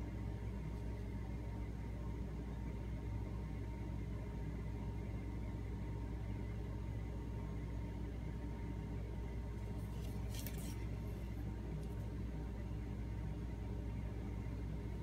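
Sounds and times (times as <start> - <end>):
low background hum: 0.0 - 15.0
faint scratchy rustle: 9.7 - 11.0.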